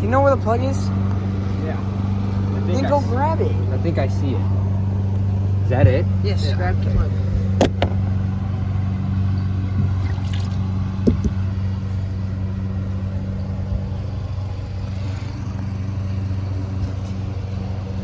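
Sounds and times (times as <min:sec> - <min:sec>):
engine idling: 0:00.0 - 0:18.0
light knocks: 0:11.0 - 0:11.4.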